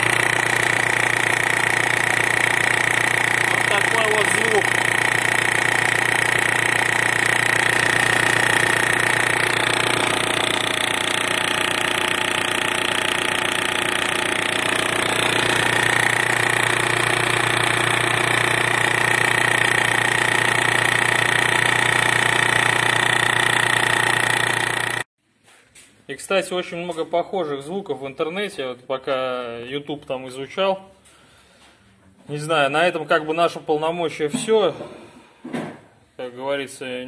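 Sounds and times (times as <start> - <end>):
diesel engine idling: 0.0 - 25.0
fast engine knock: 0.0 - 25.0.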